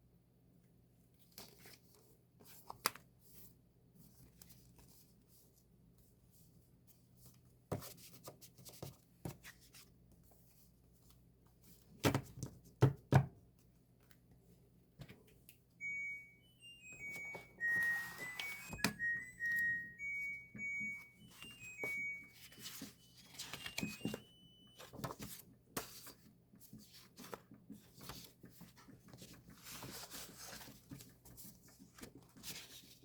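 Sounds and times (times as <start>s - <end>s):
electronic beeping notes: 15.8s - 25.1s
paper and plastic rustling: 21.5s - 33.0s.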